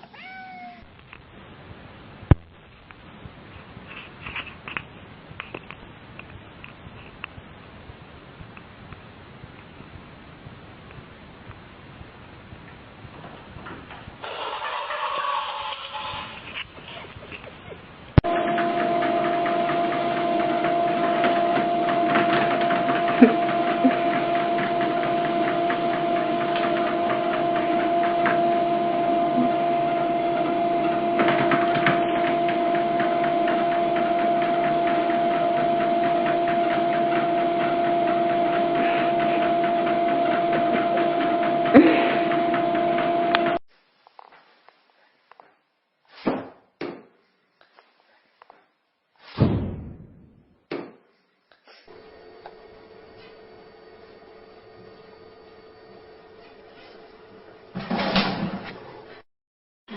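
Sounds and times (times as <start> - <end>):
machine hum: 18.0 - 43.6.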